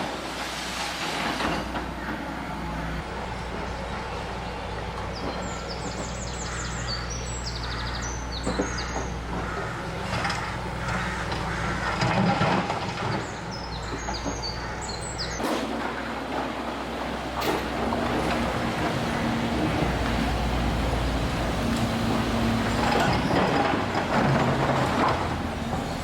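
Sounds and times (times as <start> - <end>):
demolition machinery running: 0.0 - 26.0
bird chirping: 3.3 - 9.2.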